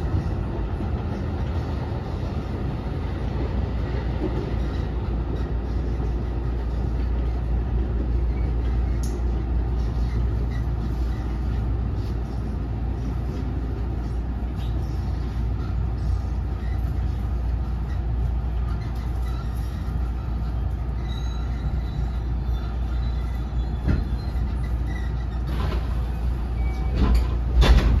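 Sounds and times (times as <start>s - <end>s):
train interior rumble: 0.0s - 28.0s
high wheel squeals: 16.0s - 27.3s.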